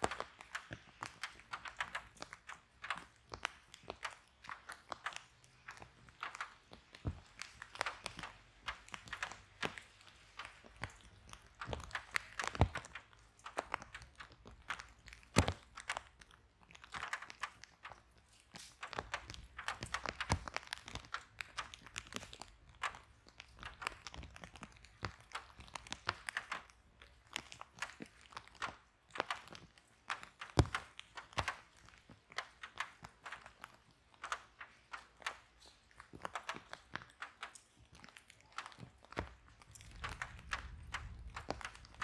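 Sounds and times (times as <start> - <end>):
wood fire crackling and popping: 0.0 - 42.0
low rumble of flames: 39.2 - 42.0.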